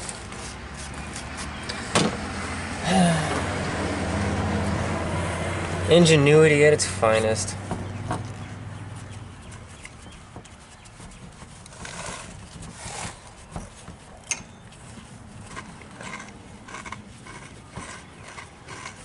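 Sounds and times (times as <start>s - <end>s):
brush scrubbing metal: 6.0s - 19.0s.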